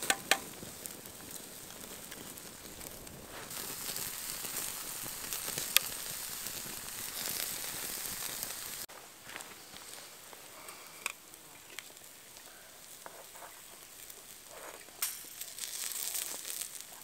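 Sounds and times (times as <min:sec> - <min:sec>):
sharp pop: 0:00.0 - 0:00.5
food sizzling over fire: 0:00.0 - 0:17.0.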